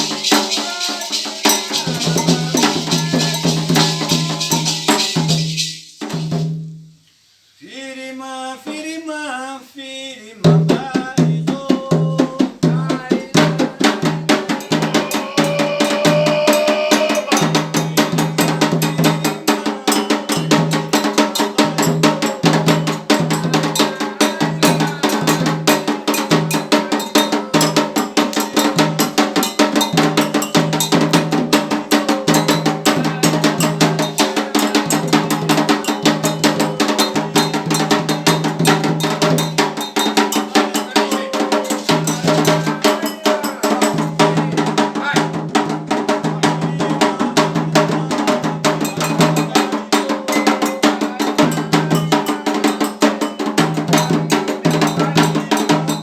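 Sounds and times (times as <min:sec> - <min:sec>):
iron bell rhythm: 0:00.0 - 0:05.7, 0:14.5 - 0:44.2, 0:48.7 - 0:56.0
voices singing: 0:00.0 - 0:06.4, 0:07.6 - 0:56.0
hand drums: 0:00.0 - 0:06.9, 0:10.5 - 0:56.0.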